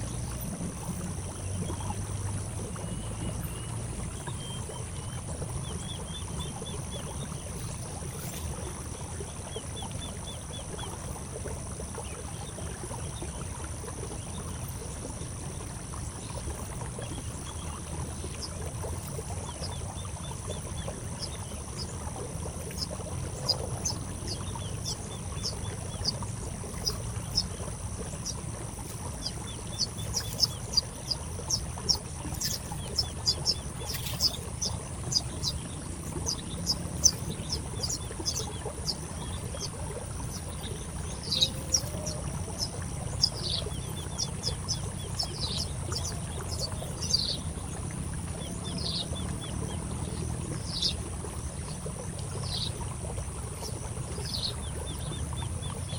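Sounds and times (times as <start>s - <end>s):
small bird chirping: 2.8s - 8.5s, 16.6s - 47.5s
high insect-like drone: 22.6s - 42.0s.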